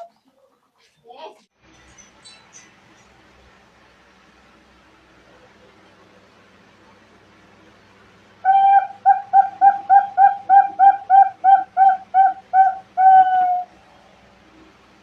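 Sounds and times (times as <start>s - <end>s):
dove cooing: 8.4s - 13.8s.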